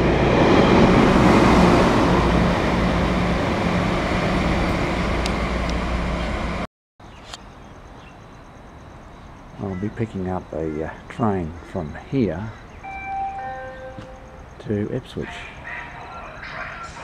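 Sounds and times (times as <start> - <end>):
train rushing past: 0.0 - 6.6, 12.8 - 17.0.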